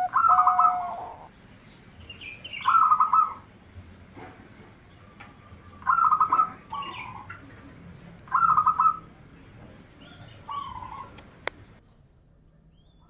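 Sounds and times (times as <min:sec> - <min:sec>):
dove cooing: 0:00.0 - 0:01.3, 0:02.5 - 0:03.5, 0:05.4 - 0:07.6, 0:08.3 - 0:09.3, 0:10.0 - 0:11.5.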